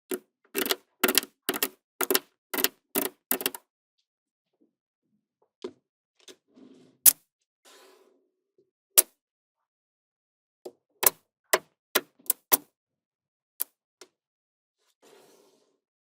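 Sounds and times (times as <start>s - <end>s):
magnetic balls clicking together: 0.1s - 3.6s.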